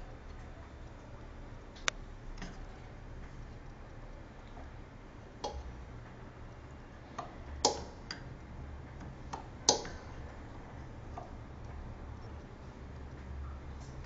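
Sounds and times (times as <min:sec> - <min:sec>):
steady low hum: 0:00.0 - 0:14.0
sharp clicks and knocks: 0:08.9 - 0:10.2.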